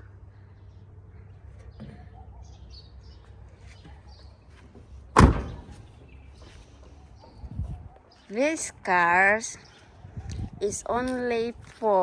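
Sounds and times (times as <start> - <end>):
car door slamming: 5.1 - 5.8.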